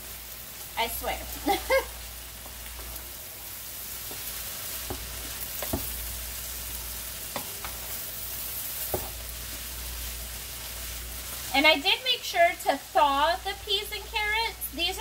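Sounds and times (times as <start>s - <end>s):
rice sizzling in a pan: 0.0s - 15.0s
spatula scraping and knocking pan: 4.0s - 6.1s, 7.3s - 8.0s, 8.8s - 9.3s.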